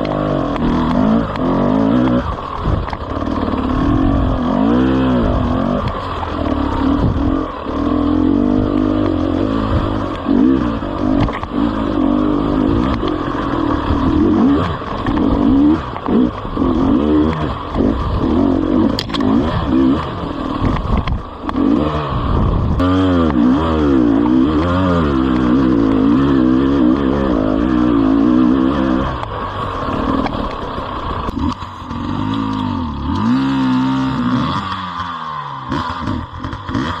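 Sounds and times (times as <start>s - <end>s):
motorcycle clattering over stones: 0.0s - 4.2s, 12.8s - 21.7s
motorcycle engine revving: 0.0s - 37.0s.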